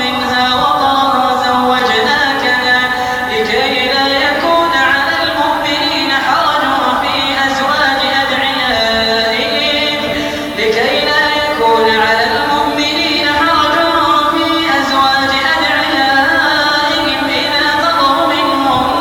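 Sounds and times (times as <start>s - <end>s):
person chanting a recitation: 0.0s - 19.0s.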